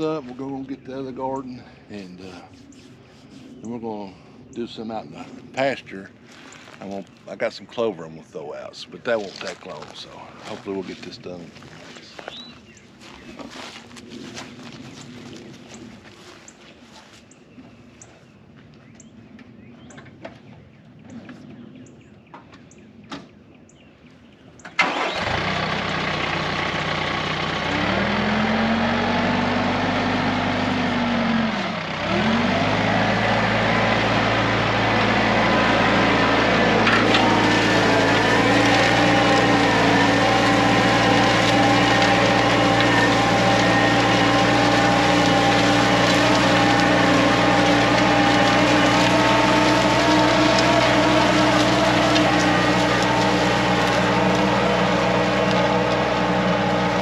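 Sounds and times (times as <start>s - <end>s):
tractor diesel engine: 0.0s - 2.6s, 24.8s - 57.0s.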